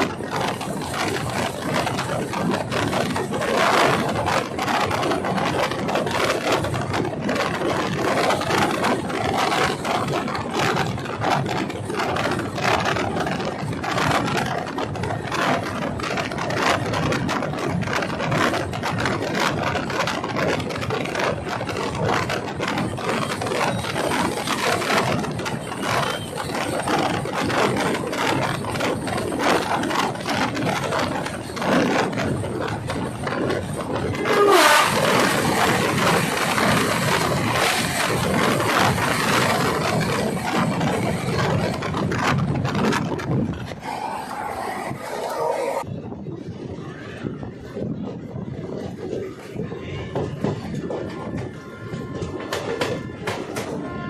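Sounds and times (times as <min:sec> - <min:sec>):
train rattling and clattering: 0:00.0 - 0:54.0.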